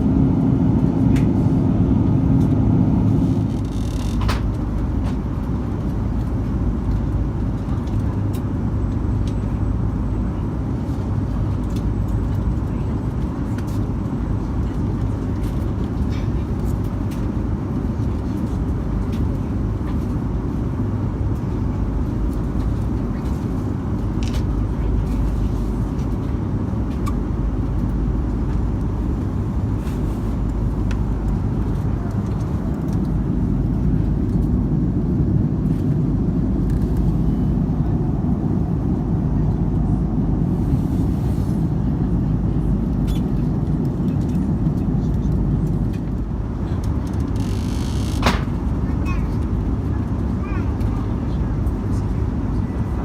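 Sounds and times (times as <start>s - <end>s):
airliner cabin rumble: 0.0s - 53.0s.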